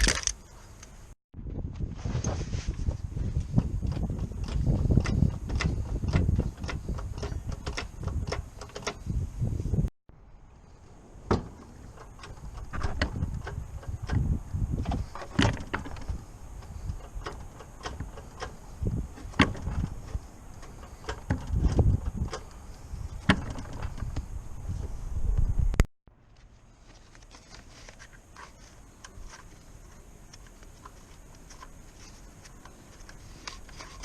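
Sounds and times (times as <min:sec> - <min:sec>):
tools clicking and knocking: 0:03.8 - 0:09.1, 0:19.2 - 0:22.6.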